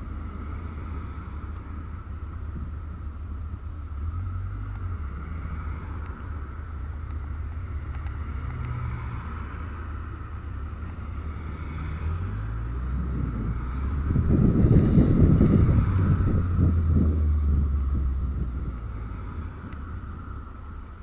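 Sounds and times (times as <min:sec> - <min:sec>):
wind noise on microphone: 0:12.2 - 0:21.0.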